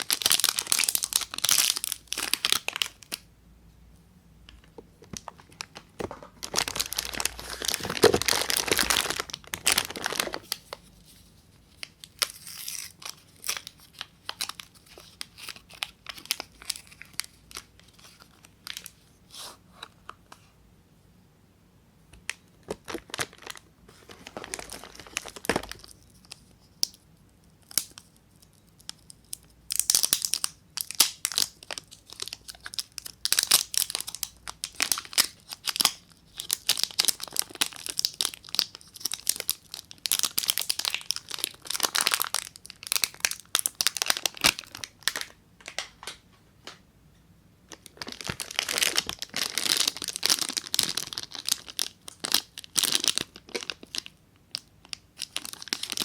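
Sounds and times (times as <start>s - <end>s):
wrappers tearing and crinkling: 0.0s - 3.2s, 5.3s - 10.8s, 11.8s - 18.9s, 22.7s - 26.4s, 29.7s - 46.1s, 47.7s - 56.0s.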